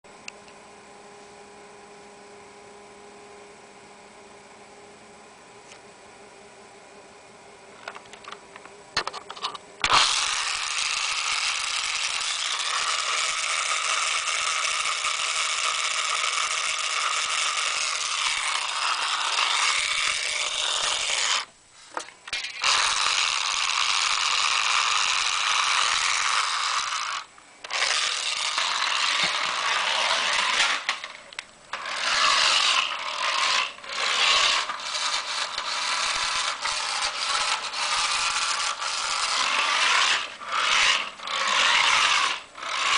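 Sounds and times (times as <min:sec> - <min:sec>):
toy car motor whirring: 0:09.3 - 0:21.5, 0:22.3 - 0:42.9.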